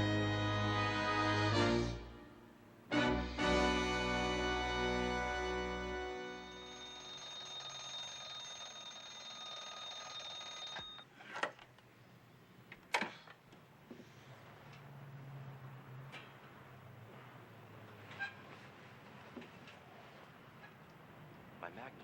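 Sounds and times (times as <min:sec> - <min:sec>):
music chord: 0:00.0 - 0:07.0
alarm clock ringing: 0:06.3 - 0:11.0.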